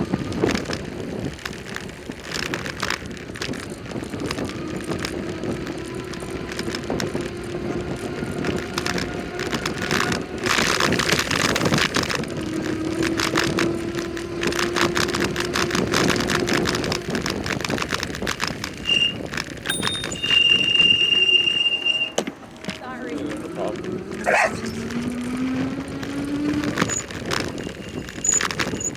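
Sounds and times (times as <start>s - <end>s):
bicycle rattling: 0.0s - 28.9s
bicycle tyres on road: 0.0s - 28.9s
high-pitched squeal: 18.9s - 25.1s.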